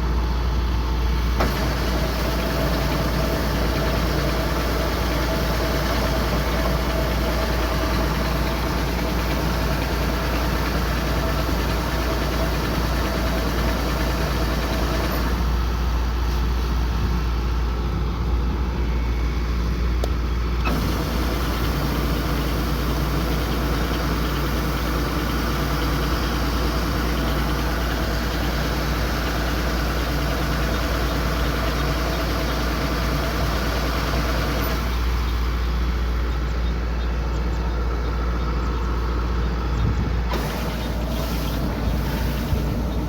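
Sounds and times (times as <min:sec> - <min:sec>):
combine harvester engine running: 0:00.0 - 0:43.0
loud rushing hiss: 0:40.3 - 0:43.0.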